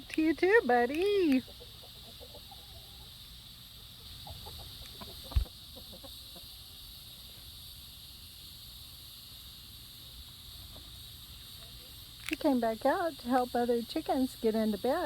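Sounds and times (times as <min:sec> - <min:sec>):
high insect buzz: 0:00.0 - 0:15.0
chickens clucking softly: 0:01.3 - 0:03.2, 0:04.0 - 0:06.6.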